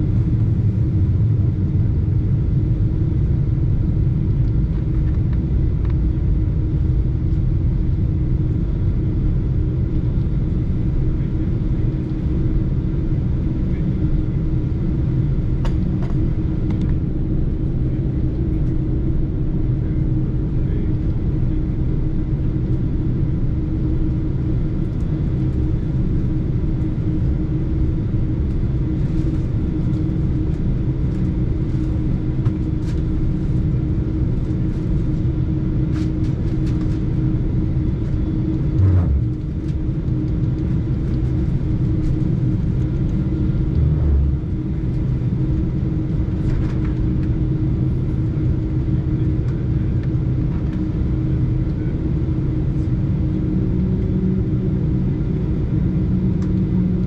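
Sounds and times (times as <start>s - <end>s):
aircraft cabin engine drone: 0.0s - 57.0s
constant hum: 0.0s - 57.0s.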